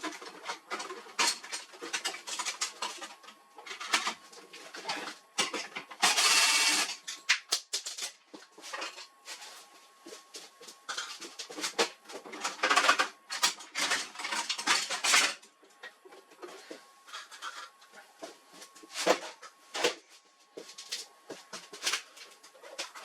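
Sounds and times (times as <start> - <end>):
plastic and metal parts rattling: 10.9 - 15.4.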